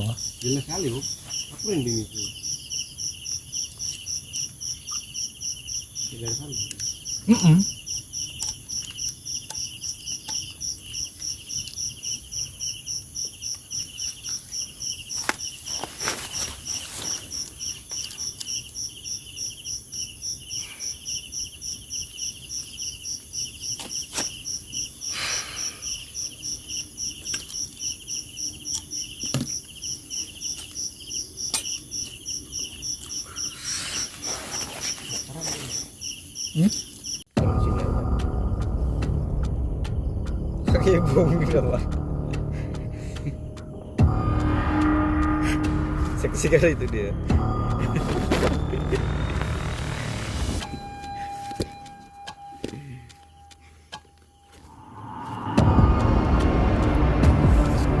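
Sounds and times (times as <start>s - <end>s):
crickets chirping: 0.0s - 58.0s
faint rustles: 33.2s - 37.0s.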